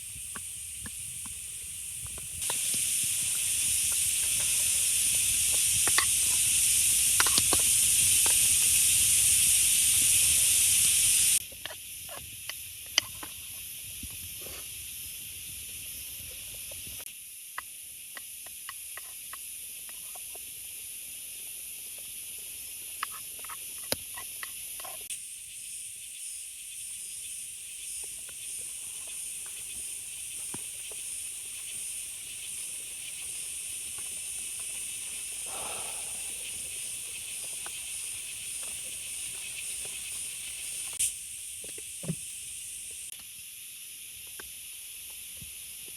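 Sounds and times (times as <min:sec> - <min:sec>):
heavy rain hissing: 0:02.4 - 0:11.4, 0:28.6 - 0:43.1
sharp drip ticks: 0:27.8 - 0:41.8.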